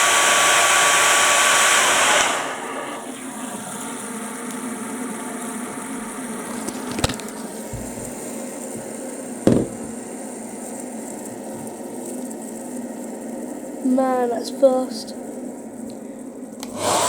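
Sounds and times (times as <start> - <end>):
fidget spinner whirring: 0.0 - 4.9
sharp knocks: 9.5 - 10.0.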